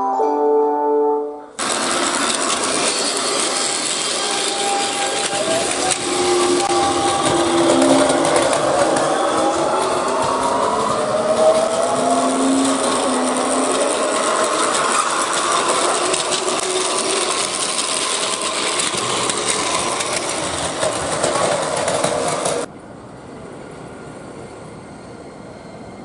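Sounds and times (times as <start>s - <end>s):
train rail and wheel noise: 1.5s - 26.0s
electric motor whine: 1.6s - 10.5s.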